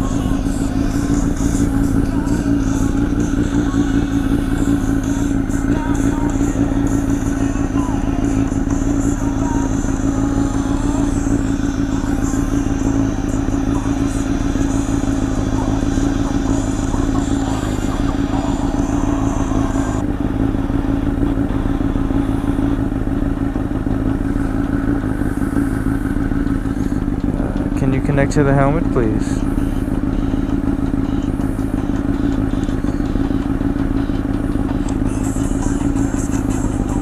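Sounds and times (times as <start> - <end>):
motorcycle engine running steadily: 0.0 - 37.0.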